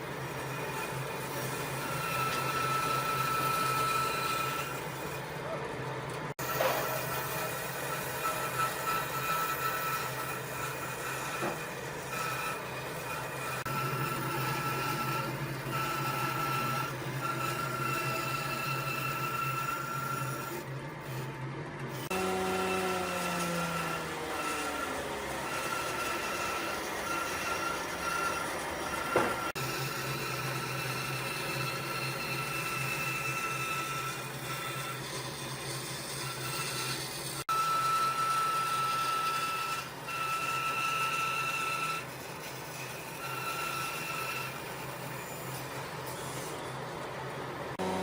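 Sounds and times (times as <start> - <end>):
power tool whining: 0.0 - 5.6, 6.3 - 46.8, 47.7 - 48.0
electric motor humming: 6.4 - 35.1, 47.7 - 48.0.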